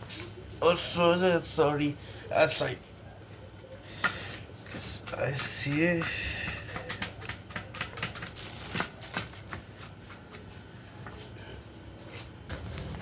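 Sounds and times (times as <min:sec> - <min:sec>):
knife chopping on cutting board: 0:05.0 - 0:10.4.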